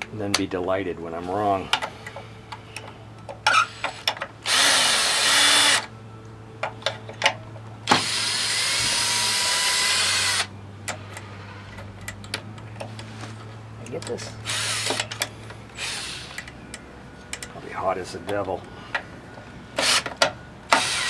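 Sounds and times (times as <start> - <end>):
tool handling clicks: 1.7 - 5.9, 10.0 - 17.6
power tool running: 3.5 - 5.9, 7.8 - 10.5, 14.4 - 16.5, 19.7 - 21.0.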